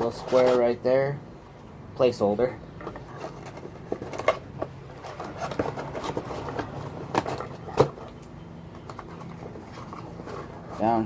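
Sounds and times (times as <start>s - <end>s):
packaging rustling and scraping: 0.0s - 0.8s, 2.8s - 8.2s, 8.8s - 11.0s.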